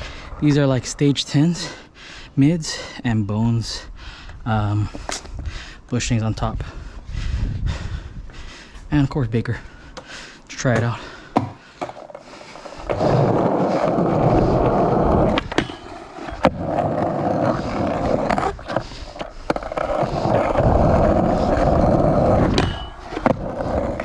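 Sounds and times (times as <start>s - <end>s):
skateboard wheels rolling: 10.8s - 24.0s.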